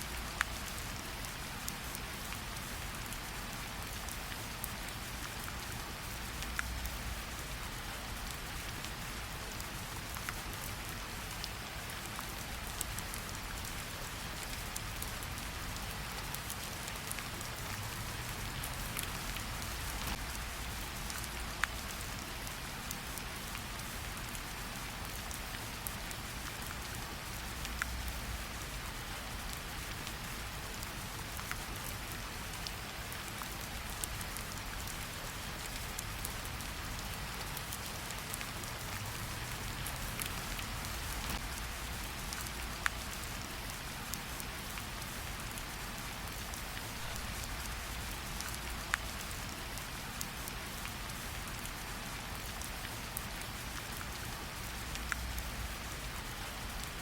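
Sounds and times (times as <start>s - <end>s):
rain falling on leaves: 0.0s - 57.0s.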